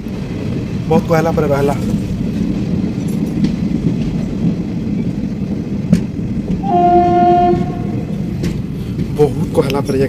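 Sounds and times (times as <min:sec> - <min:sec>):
train low rumble: 0:00.0 - 0:10.0
locomotive horn: 0:06.6 - 0:08.1.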